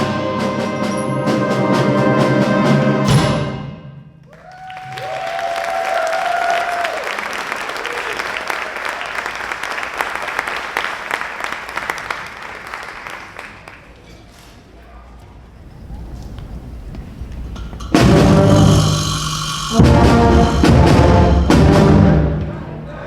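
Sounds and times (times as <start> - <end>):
person whooping: 4.3 - 7.1
audience applauding: 4.3 - 14.0
concert band chord: 17.6 - 23.0.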